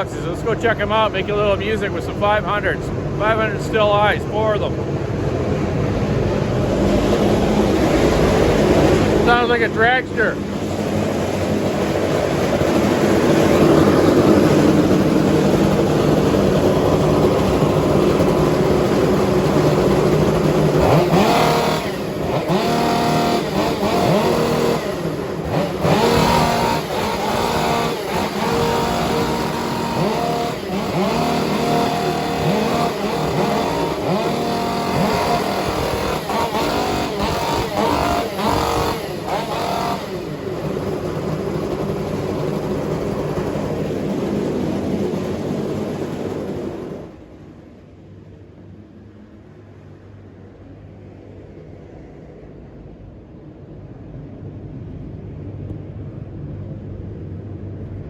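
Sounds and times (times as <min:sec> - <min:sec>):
chainsaws revving: 0:00.0 - 0:47.3.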